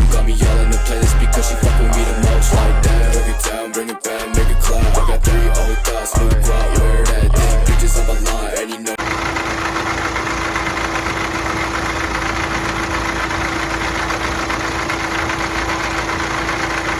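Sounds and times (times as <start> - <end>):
music: 0.0 - 9.0
car engine idling with knock: 9.0 - 16.9.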